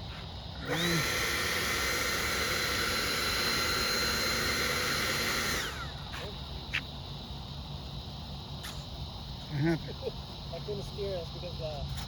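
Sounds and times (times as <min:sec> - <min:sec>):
model jet fan whine: 0:00.0 - 0:12.0.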